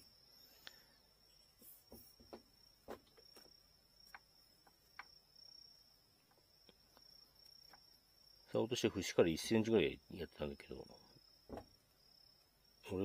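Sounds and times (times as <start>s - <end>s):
small clicks and taps: 1.9s - 5.2s.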